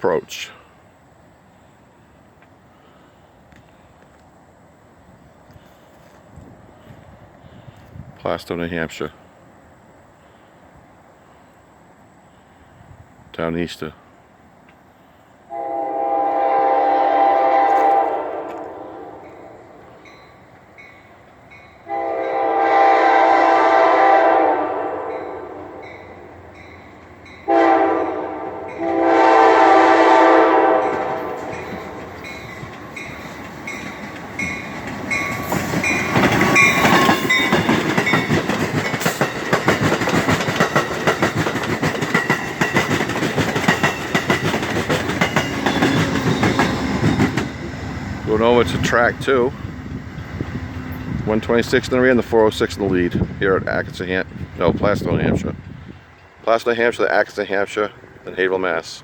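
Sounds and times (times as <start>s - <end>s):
locomotive horn blasts: 15.5s - 19.8s, 21.8s - 25.9s, 27.4s - 32.0s
train wheels clattering over rails: 30.8s - 49.0s.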